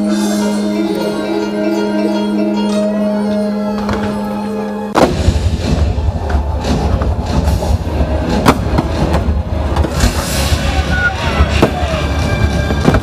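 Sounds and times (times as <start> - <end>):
fireworks bangs and crackles: 4.9 - 13.0.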